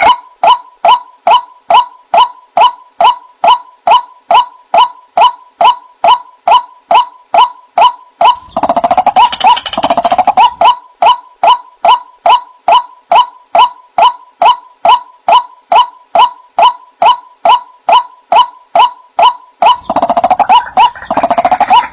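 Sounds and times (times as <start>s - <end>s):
bird calling: 0.0s - 21.9s
bird rapid chattering: 0.0s - 21.9s.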